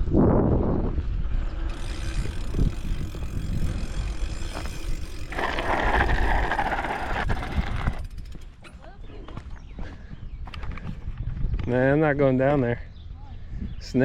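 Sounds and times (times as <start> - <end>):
bicycle tyre noise: 0.0 - 8.7
wind rumbling on microphone: 0.0 - 14.0.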